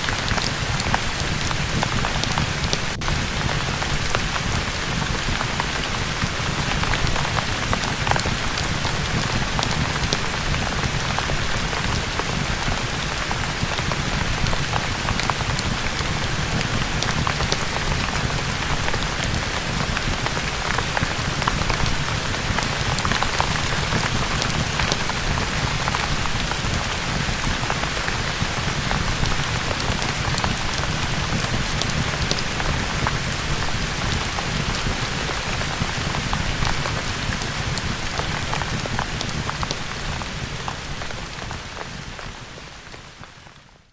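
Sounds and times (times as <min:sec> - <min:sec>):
rain drops ticking: 0:00.0 - 0:43.9
steady rain: 0:00.0 - 0:43.9.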